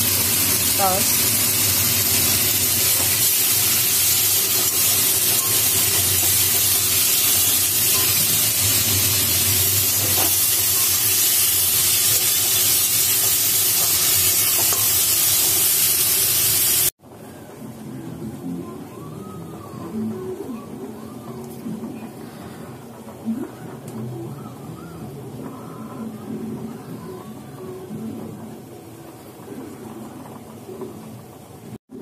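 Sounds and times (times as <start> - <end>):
vegetables sizzling in hot oil: 0.0 - 16.9.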